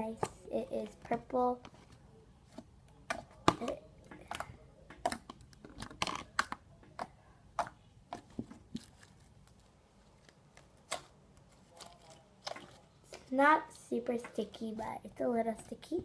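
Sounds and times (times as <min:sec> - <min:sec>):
slime squishing with sticky clicks: 0:02.8 - 0:09.6.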